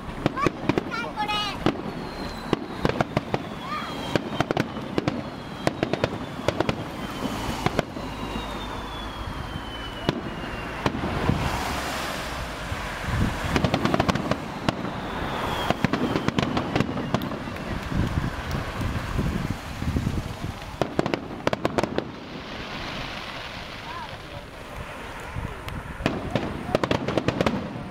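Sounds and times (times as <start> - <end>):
fireworks bangs and crackles: 0.0 - 27.9
faint falling whistle: 1.7 - 11.0, 14.2 - 17.8.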